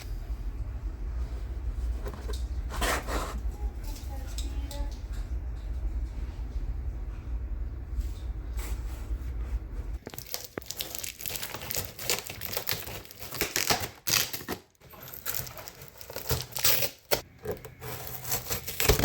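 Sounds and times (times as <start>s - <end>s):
steady low hum: 0.0s - 10.1s
crinkling and rustling: 9.9s - 19.0s.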